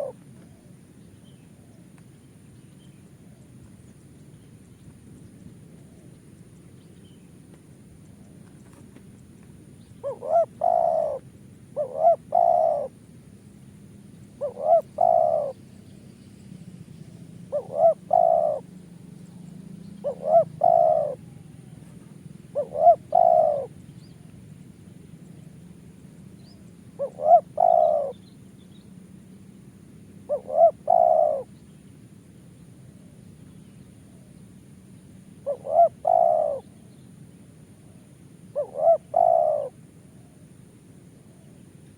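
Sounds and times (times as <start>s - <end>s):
dove cooing: 0.0s - 0.8s, 10.0s - 13.0s, 14.4s - 15.6s, 17.1s - 24.3s, 26.9s - 28.2s, 30.2s - 31.5s, 35.4s - 36.9s, 37.8s - 40.5s.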